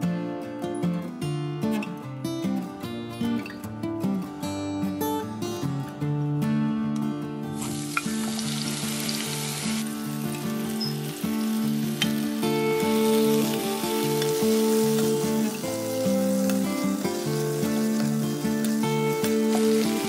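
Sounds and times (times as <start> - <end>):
vegetables sizzling in oil: 7.6 - 20.0.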